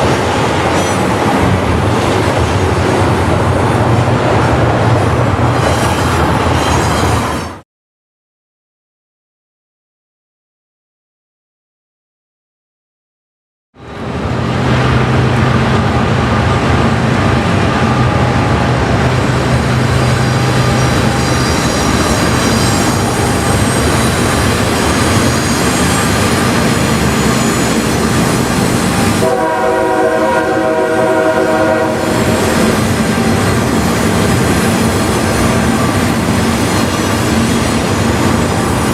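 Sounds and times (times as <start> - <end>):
diesel freight train running: 0.0 - 7.6, 13.8 - 38.9
locomotive air horn: 28.8 - 33.5.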